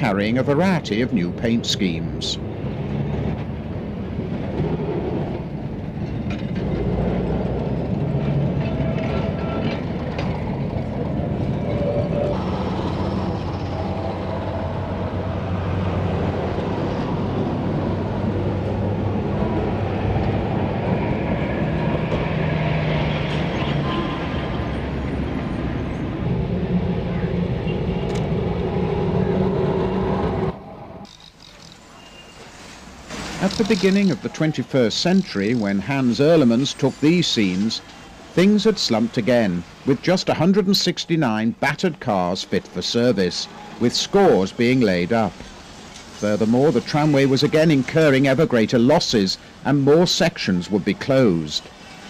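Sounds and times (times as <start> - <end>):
tram wheels rumbling on rails: 0.0 - 39.2.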